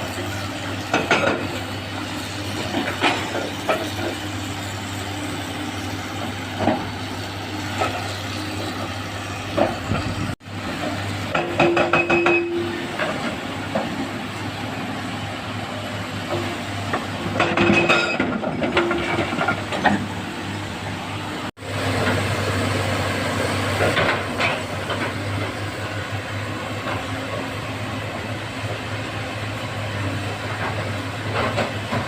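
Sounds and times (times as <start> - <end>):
clanks of rock and steel: 0.0 - 4.3, 11.3 - 14.0, 16.3 - 20.1, 23.8 - 25.6, 30.5 - 32.0
rapid clattering with squeal: 0.0 - 10.4, 16.3 - 20.1
heavy diesel machinery running: 0.0 - 32.0.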